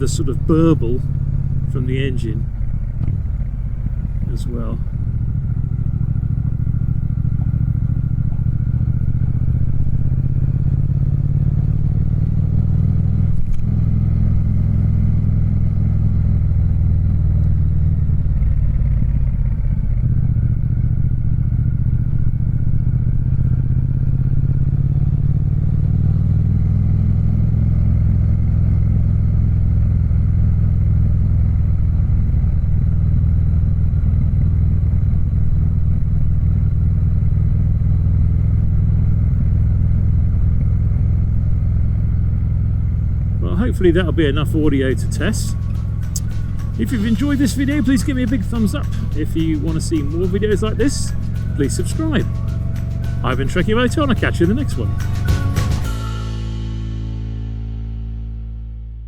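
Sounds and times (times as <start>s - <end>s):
motorcycle engine burbling: 0.0s - 59.0s.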